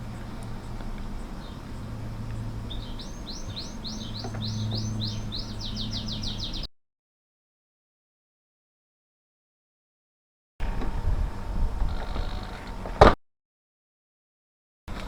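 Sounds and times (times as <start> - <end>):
songbird singing: 0.0 - 6.7
steady low hum: 0.0 - 6.7, 10.6 - 13.2.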